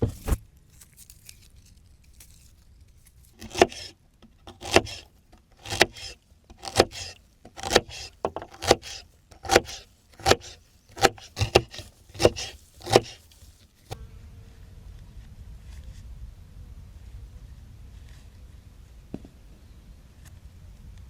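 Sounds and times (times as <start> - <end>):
knife chopping on wooden board: 3.4 - 3.9, 4.5 - 5.0, 5.6 - 13.2.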